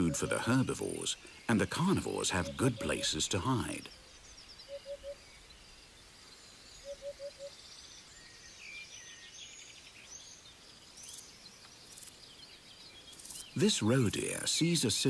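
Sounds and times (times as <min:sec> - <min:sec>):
low bird call: 0:00.0 - 0:05.4, 0:06.8 - 0:07.6
small birds chirping and trilling: 0:00.0 - 0:15.0.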